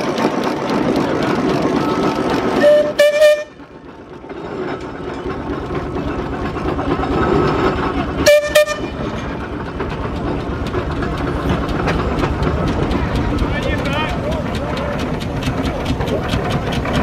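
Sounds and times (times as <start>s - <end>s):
steam engines rumbling: 0.0s - 17.0s
steam whistle blasts: 2.6s - 3.6s, 8.2s - 8.9s.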